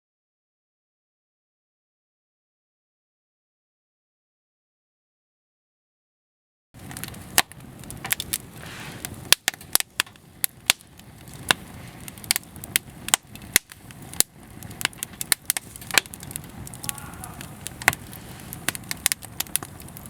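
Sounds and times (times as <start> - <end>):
wood fire crackling: 6.8 - 20.0.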